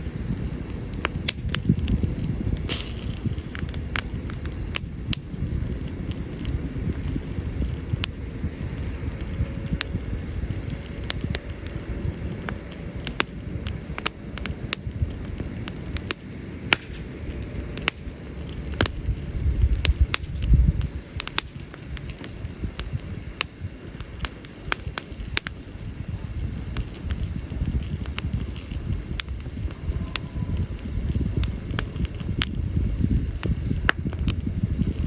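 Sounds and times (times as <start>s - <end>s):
campfire crackling and popping: 0.0s - 35.0s.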